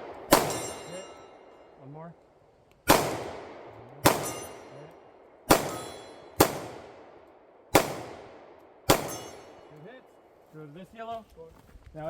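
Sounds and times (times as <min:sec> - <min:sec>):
pistol shots: 0:00.0 - 0:01.2, 0:02.8 - 0:04.8, 0:05.4 - 0:09.7
steel target ringing: 0:00.2 - 0:01.7, 0:04.0 - 0:04.9, 0:05.5 - 0:06.4, 0:08.9 - 0:09.7.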